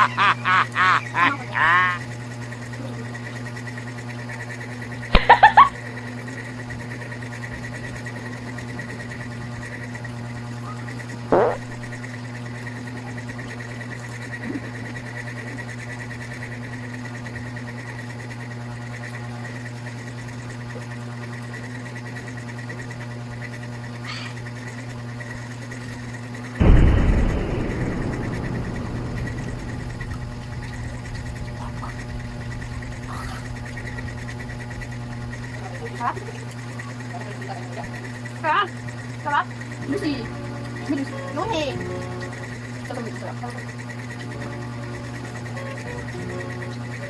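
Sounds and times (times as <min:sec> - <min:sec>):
machine hum with high whine: 0:00.0 - 0:47.0
sharp loud sounds: 0:26.6 - 0:33.2.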